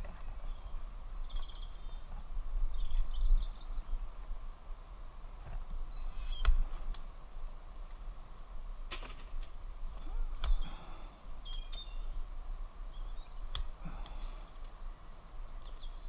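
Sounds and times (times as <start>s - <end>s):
small birds chirping: 0.0s - 4.3s, 5.8s - 7.0s, 9.9s - 16.0s.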